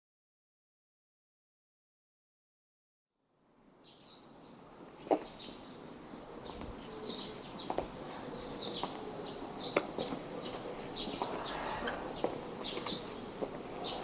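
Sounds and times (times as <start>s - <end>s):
steady background hiss: 3.2s - 14.0s
small birds chirping: 3.8s - 14.0s.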